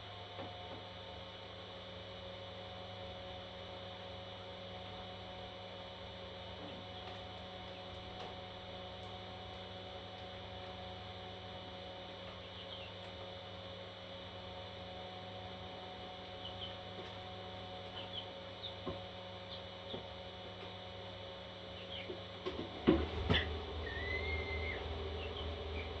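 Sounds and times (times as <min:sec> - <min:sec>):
steady electrical hum: 0:00.0 - 0:26.0
parrot chicks chirping: 0:12.4 - 0:13.1, 0:16.3 - 0:16.9, 0:17.8 - 0:20.1, 0:21.7 - 0:22.2, 0:23.2 - 0:26.0.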